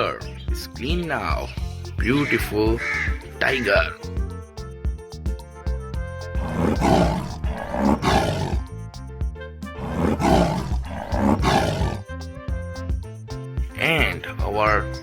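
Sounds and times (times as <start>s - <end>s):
background music with steady beat: 0.0s - 15.0s
tiger roaring: 6.3s - 8.7s, 9.8s - 12.0s.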